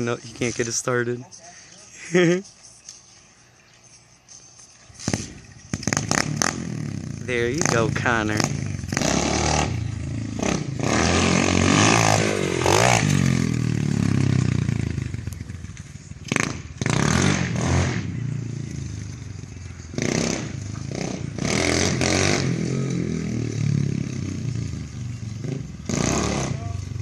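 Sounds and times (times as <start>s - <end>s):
dirt bike engine revving: 5.0s - 27.0s.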